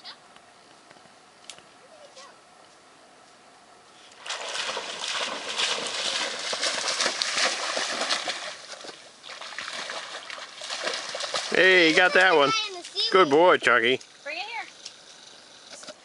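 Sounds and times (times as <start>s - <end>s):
dog splashing through water: 4.2s - 12.3s.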